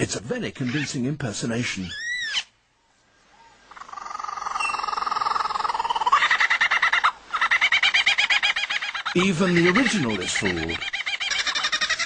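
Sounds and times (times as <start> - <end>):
kookaburra cackling: 3.7 - 12.0.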